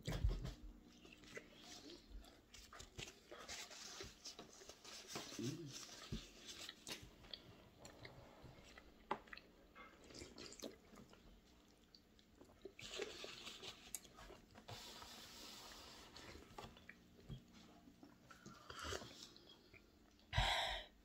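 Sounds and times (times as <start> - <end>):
person chewing food: 0.9 - 4.8, 5.9 - 14.6, 16.3 - 20.3.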